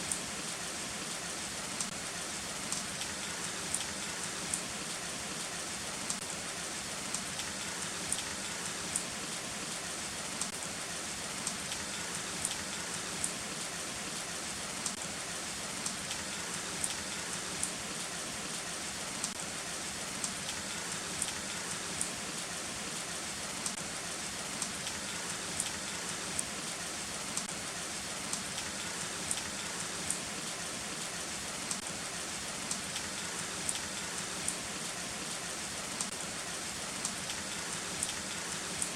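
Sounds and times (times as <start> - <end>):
heavy rain hissing: 0.0 - 38.9
rain drop taps: 29.3 - 30.2, 37.0 - 38.9.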